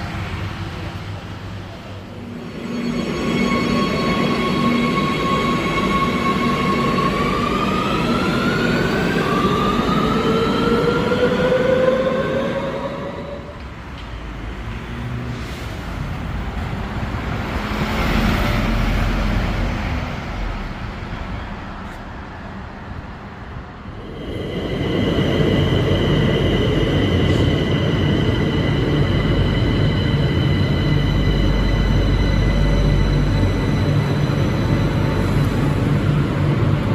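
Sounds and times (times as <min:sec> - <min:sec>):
train running on rails: 0:00.0 - 0:36.9
high sustained tones: 0:02.1 - 0:13.6, 0:23.9 - 0:36.9.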